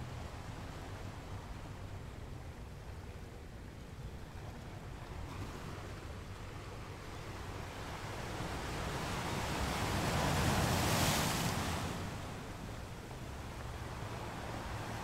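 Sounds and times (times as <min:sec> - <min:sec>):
surf washing in: 0:07.5 - 0:15.0.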